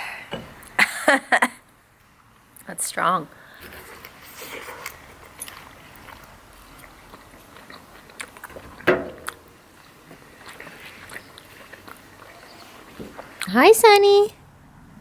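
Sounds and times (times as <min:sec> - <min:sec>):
chewing: 0:03.6 - 0:13.5.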